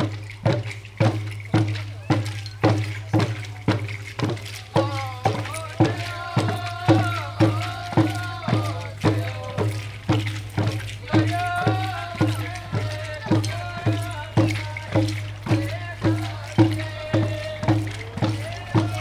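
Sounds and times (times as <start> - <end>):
hand drums beating: 0.0 - 19.0
group singing in unison: 4.7 - 19.0.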